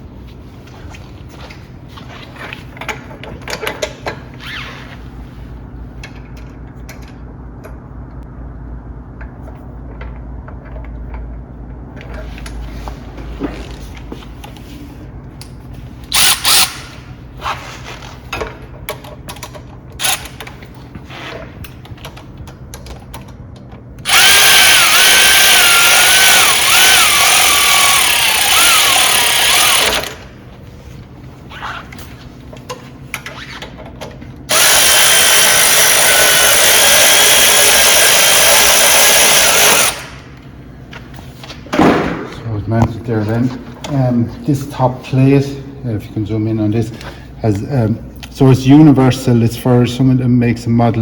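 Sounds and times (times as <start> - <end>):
power drill driving screws: 16.1 - 17.0, 24.0 - 30.3, 34.5 - 40.2.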